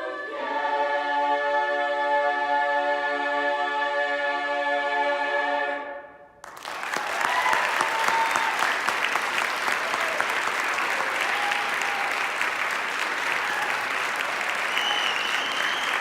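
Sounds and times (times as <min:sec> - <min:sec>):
a cappella chorus singing: 0:00.0 - 0:06.2
audience applause: 0:06.4 - 0:16.0
audience cheering: 0:06.5 - 0:16.0.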